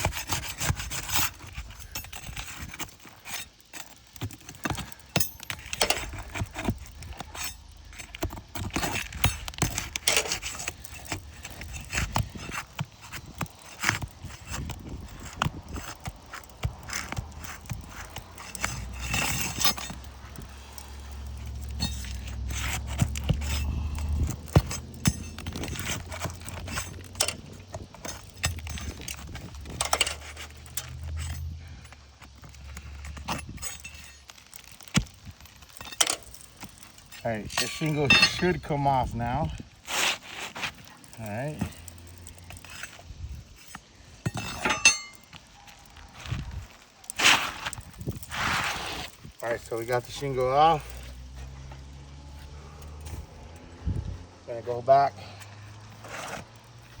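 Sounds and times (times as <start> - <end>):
pry bar knocking and scraping shingles: 0.0 - 45.5.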